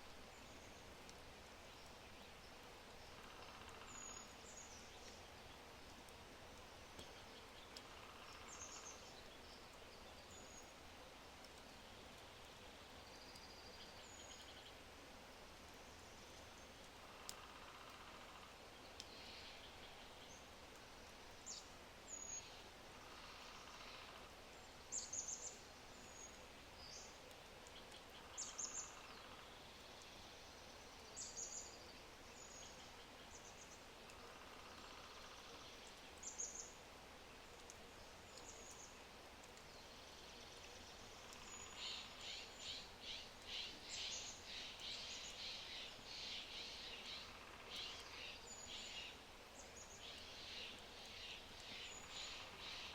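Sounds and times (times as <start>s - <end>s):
steady background hiss: 0.0s - 52.9s
birds singing: 38.2s - 52.9s.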